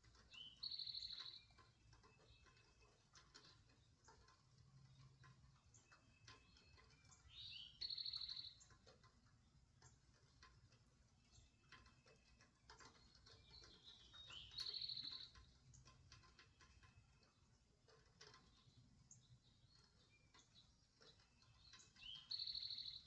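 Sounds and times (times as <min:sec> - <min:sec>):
faint ticks: 0:00.0 - 0:23.0
bird singing with buzzy trill: 0:00.1 - 0:03.0, 0:04.8 - 0:08.9, 0:11.2 - 0:15.9, 0:18.4 - 0:23.0.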